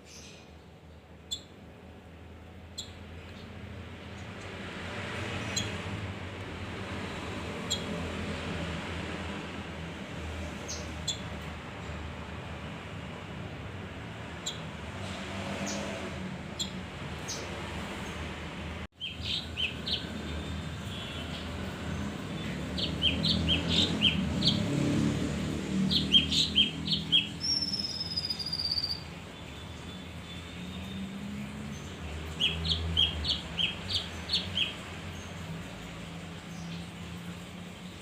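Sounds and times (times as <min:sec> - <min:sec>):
songbird chirping: 0:19.0 - 0:38.0.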